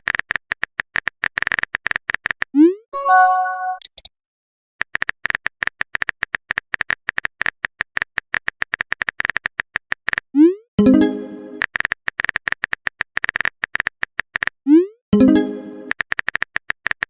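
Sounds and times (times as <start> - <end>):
phone keyboard typing clicks: 0.0 - 2.5, 3.7 - 4.1, 4.8 - 10.2, 11.6 - 14.6, 15.9 - 17.0
message chime: 3.0 - 3.8, 10.8 - 11.6, 15.2 - 15.9.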